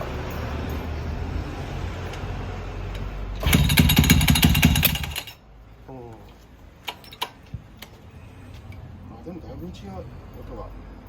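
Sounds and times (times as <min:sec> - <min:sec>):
motorcycle engine revving: 0:03.4 - 0:05.4.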